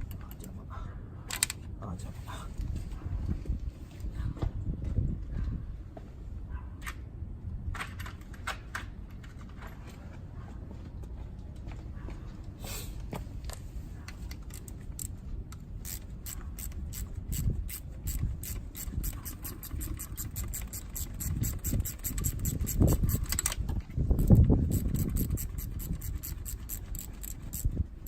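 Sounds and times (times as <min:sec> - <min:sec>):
sharp tool clicks: 0:14.3 - 0:27.7.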